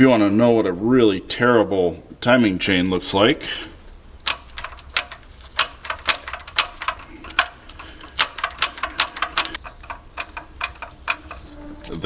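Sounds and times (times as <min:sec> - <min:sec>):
timing chain links clacking: 0:04.2 - 0:11.5.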